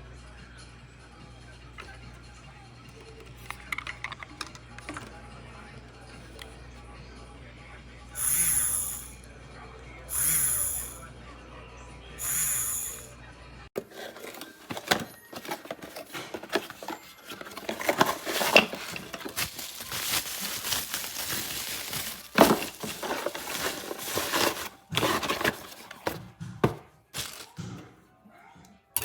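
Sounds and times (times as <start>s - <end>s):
crinkling and rustling handling noise: 13.8s - 28.0s.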